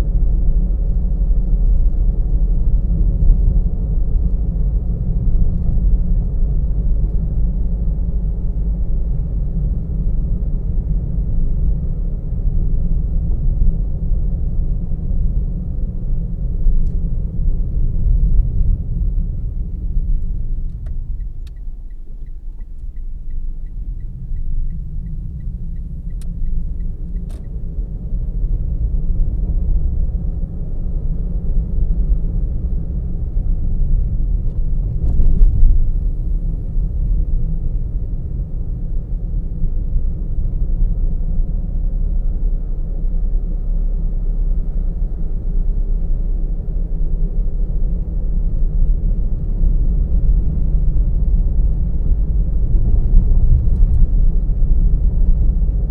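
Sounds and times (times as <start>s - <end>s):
road and engine rumble: 0.0s - 55.9s
light regular ticking: 20.6s - 27.6s.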